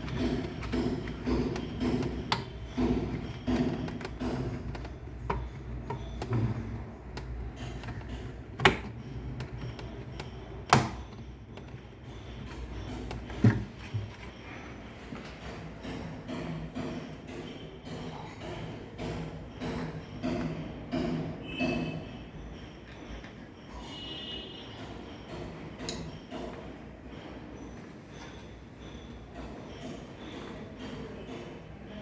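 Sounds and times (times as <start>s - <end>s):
clicks and knocks: 0.0s - 14.4s.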